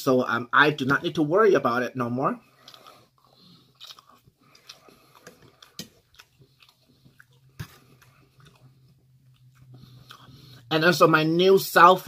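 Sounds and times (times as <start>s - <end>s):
chewing food: 2.4s - 10.7s.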